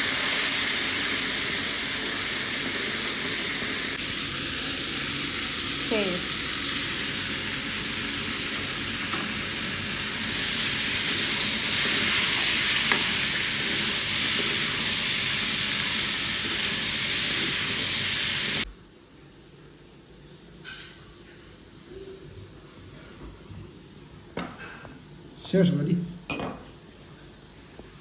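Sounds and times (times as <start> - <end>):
food sizzling in a pan: 0.0 - 18.7.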